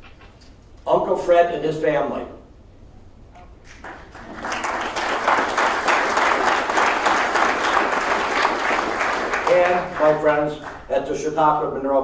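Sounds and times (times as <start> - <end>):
audience applauding in a hall: 3.8 - 10.9.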